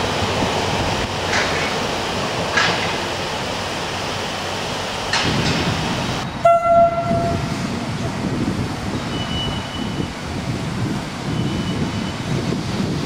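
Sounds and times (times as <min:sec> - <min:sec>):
train wheels rumbling: 0:00.0 - 0:13.0
train horn: 0:06.4 - 0:07.5.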